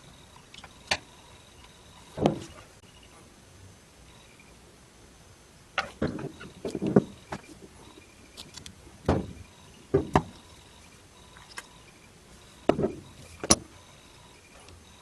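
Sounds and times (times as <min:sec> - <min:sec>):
knocks of hard objects handled: 0:09.1 - 0:10.4, 0:12.7 - 0:13.7.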